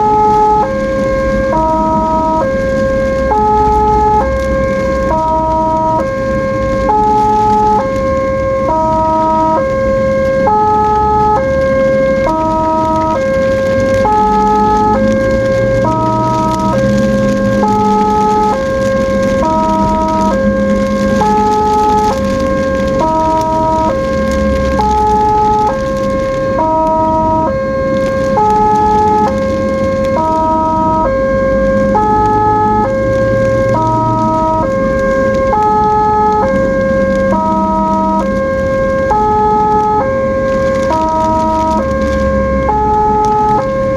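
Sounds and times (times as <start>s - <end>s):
ambulance siren multi-tone: 0.0s - 43.9s
engine and road rumble: 0.0s - 43.9s
low vehicle hum: 0.0s - 43.9s.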